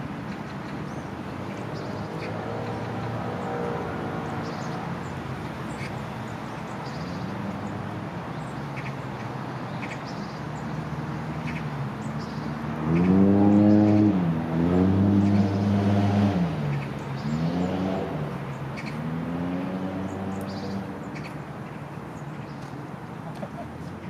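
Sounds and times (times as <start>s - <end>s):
road traffic noise: 0.0s - 24.0s
vehicle engine accelerating: 10.7s - 21.1s.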